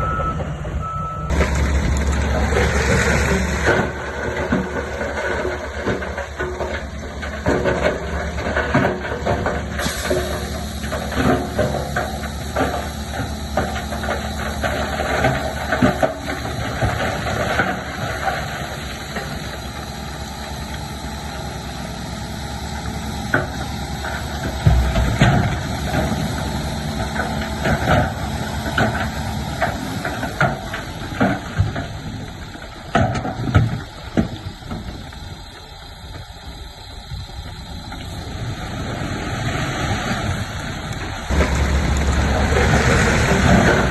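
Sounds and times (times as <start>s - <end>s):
bulldozer diesel engine running: 0.0s - 43.9s
knocks and clatter: 1.3s - 19.4s.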